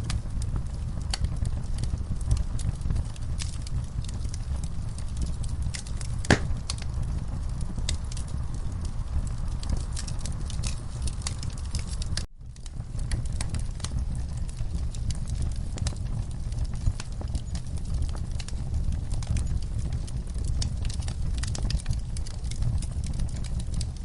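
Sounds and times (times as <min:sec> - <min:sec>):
log fire crackling: 0:00.0 - 0:24.0.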